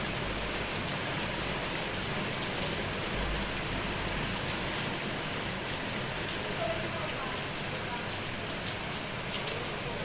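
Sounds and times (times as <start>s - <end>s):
rain pattering on hard surfaces: 0.0s - 10.0s.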